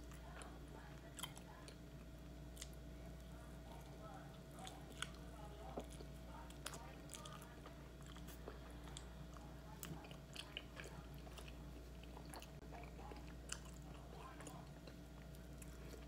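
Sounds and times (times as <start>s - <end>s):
faint steady hum: 0.0s - 16.0s
person chewing crunchy food: 4.6s - 16.0s.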